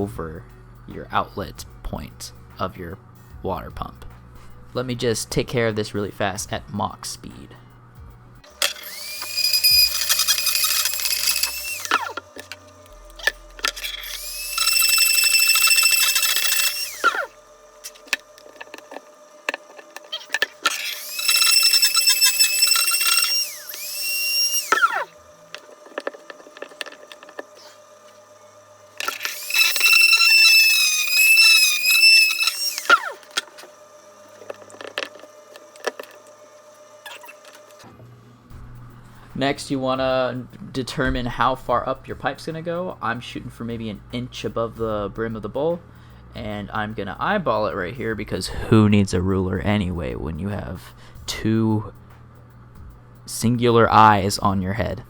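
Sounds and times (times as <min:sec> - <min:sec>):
rotary tool grinding plastic pipe: 0:08.5 - 0:37.9.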